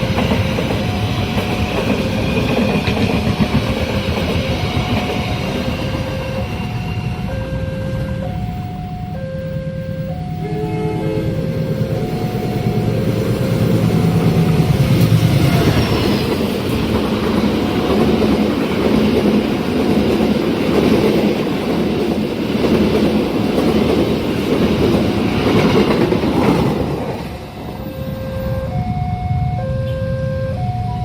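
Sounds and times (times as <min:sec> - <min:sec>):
electronic crossing warning chime: 0:00.0 - 0:03.0, 0:03.6 - 0:16.4, 0:27.6 - 0:31.0
train wheels clattering over rail joints: 0:00.0 - 0:06.6.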